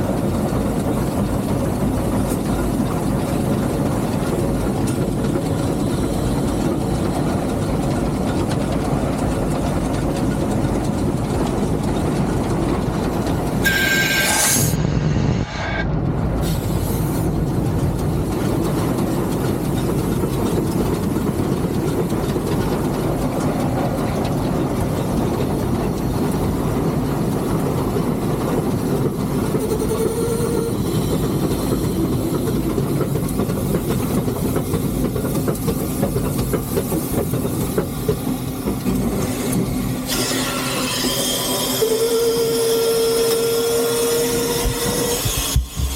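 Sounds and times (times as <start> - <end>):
steam locomotive mechanical noise: 0.0 - 45.9.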